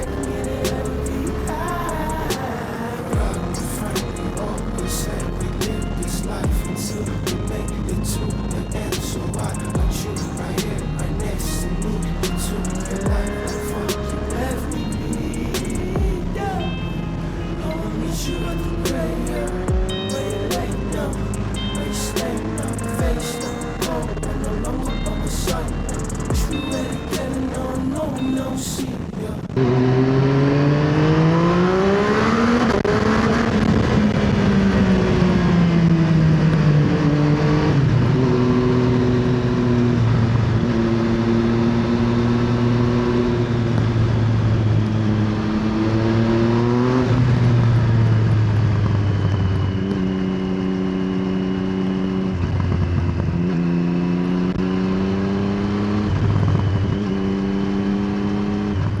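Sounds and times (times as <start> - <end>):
motorcycle engine revving: 18.3 - 28.0.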